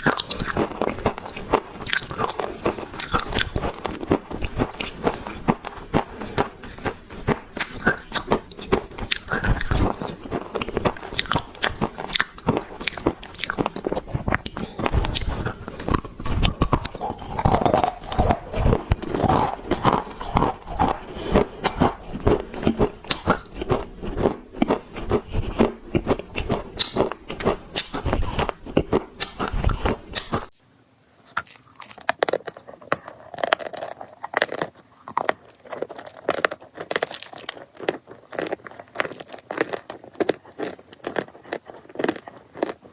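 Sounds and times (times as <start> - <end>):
chewing dry clay crunches: 0.0 - 30.6, 31.3 - 42.9.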